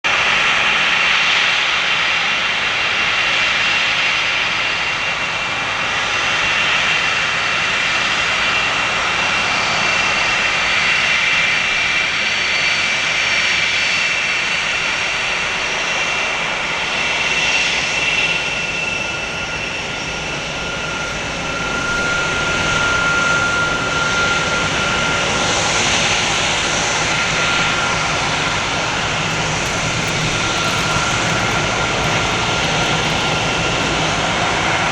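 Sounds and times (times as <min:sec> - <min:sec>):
jet engines running: 0:00.1 - 0:34.9
high whining tones: 0:19.2 - 0:34.9.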